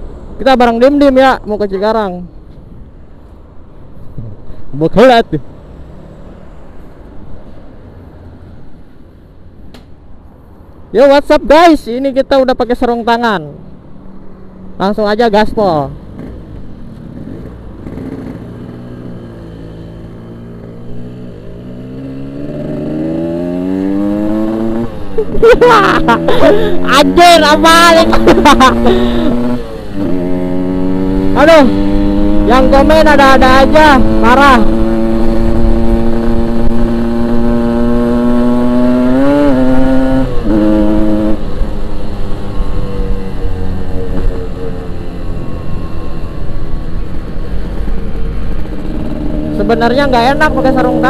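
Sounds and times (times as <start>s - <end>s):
wind and road noise: 0.0s - 51.0s
two-stroke motorcycle engine: 16.0s - 19.8s, 25.4s - 51.0s.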